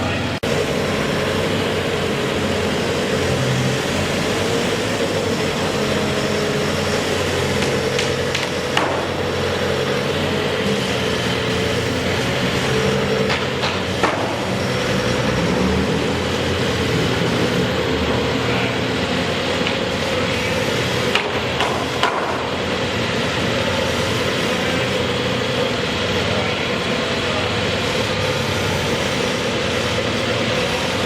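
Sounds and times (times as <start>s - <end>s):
motor engine hum: 0.0s - 31.0s
sharp knocks: 7.6s - 9.2s, 13.2s - 14.6s.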